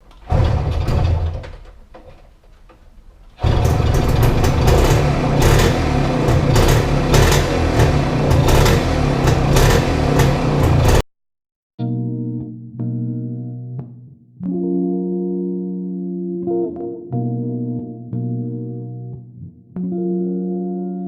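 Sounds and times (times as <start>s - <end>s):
small engine running with crackles: 3.4s - 11.0s.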